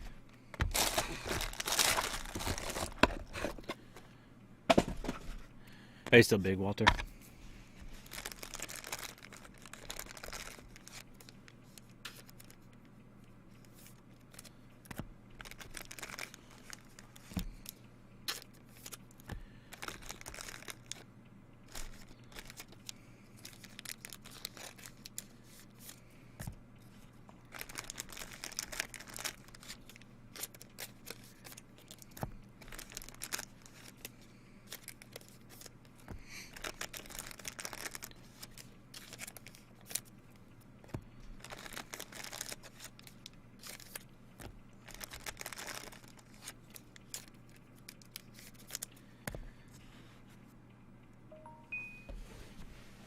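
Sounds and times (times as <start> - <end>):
steady low hum: 0.0 - 53.0
wrappers tearing and crinkling: 0.6 - 3.6, 7.9 - 12.6, 15.4 - 17.3, 18.3 - 19.1, 19.7 - 21.1, 21.7 - 26.0, 27.5 - 35.8, 36.4 - 40.1, 41.4 - 44.1, 44.8 - 49.0.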